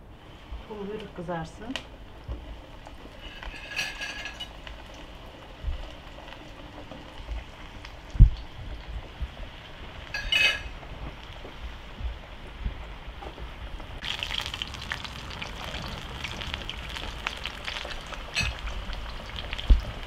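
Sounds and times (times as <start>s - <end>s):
dough frying in hot oil: 0.0s - 20.0s
fork clinking on metal pan: 10.2s - 10.7s.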